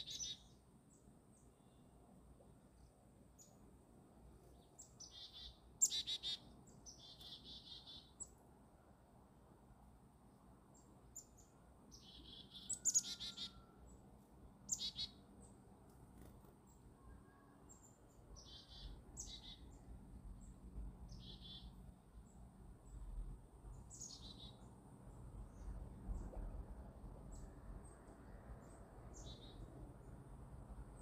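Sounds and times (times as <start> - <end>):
high bird calls: 4.8 - 8.3, 11.2 - 13.8, 14.7 - 15.2, 18.4 - 19.8, 21.1 - 21.8
faint low rumble: 24.6 - 31.0.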